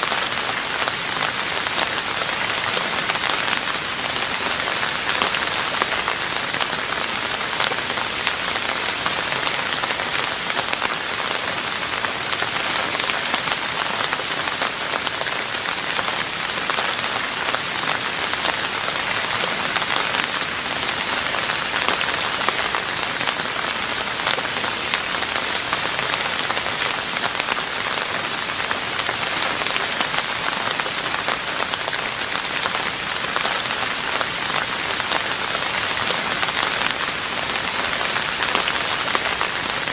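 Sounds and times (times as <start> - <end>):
rain on a roof: 0.0 - 39.9.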